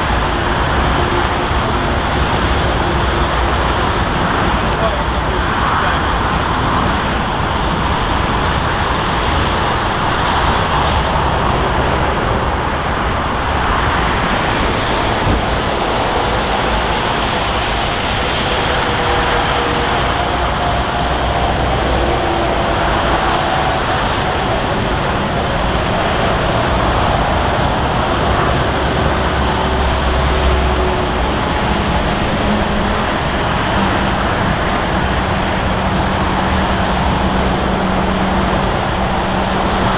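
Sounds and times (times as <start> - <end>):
jet airliner engines running: 0.0 - 39.9.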